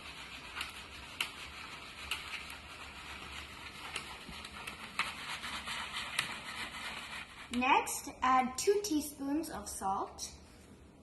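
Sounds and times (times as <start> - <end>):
utensil tapping and scraping bowl: 0.0 - 7.7.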